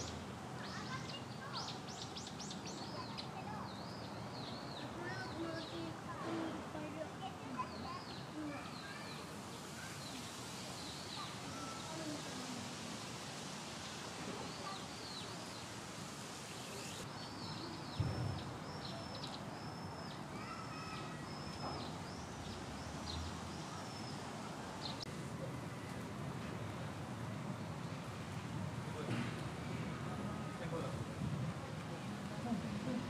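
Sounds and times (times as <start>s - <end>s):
small birds chirping: 0.0s - 6.0s, 6.8s - 12.8s, 13.7s - 25.1s
outdoor background noise: 0.0s - 33.0s
dull low thump: 18.0s - 18.5s.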